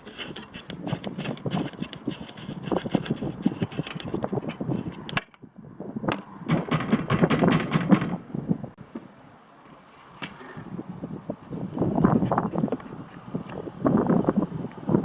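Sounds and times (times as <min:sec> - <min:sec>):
clicking and scraping of metal parts: 0:00.0 - 0:05.4.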